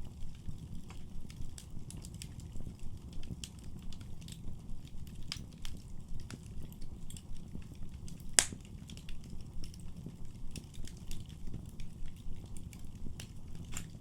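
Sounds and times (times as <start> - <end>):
fire crackling: 0.0 - 14.0
low rumble of flames: 0.0 - 14.0
loud sharp fire pop: 8.4 - 8.6.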